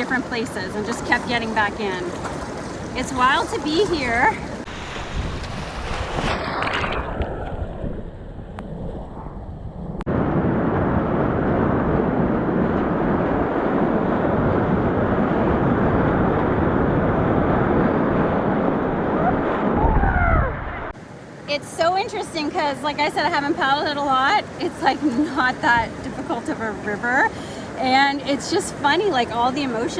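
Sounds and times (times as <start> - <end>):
whitewater rushing: 0.0 - 4.9.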